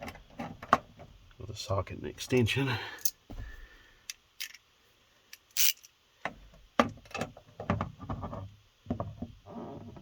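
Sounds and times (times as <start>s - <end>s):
metal tool clicks: 5.3s - 5.9s.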